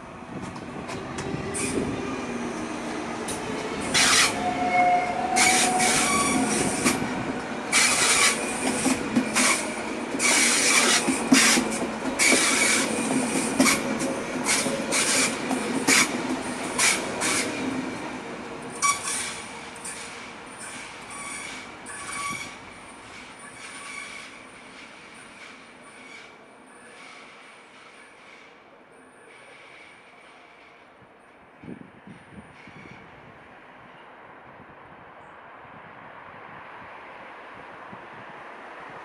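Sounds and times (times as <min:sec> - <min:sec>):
train running gear rumble: 0:00.2 - 0:21.2
high-pitched brake squeals and hisses: 0:18.8 - 0:24.3.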